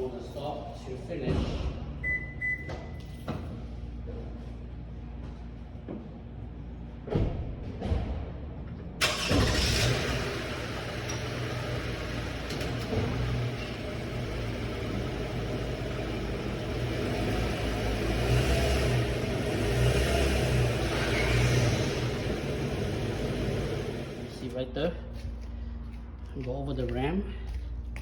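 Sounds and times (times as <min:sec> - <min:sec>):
minivan engine running: 0:09.0 - 0:24.5.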